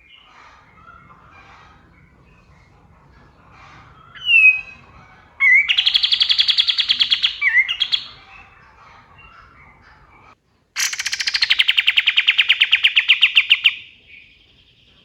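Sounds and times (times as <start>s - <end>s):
faint chirping: 0.0s - 15.0s
songbird whistling and trilling: 3.8s - 8.6s, 10.8s - 14.9s.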